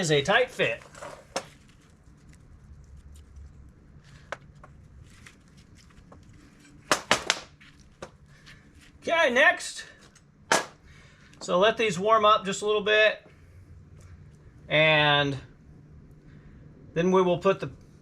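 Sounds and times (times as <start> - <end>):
sharp knocks: 6.9 - 7.5.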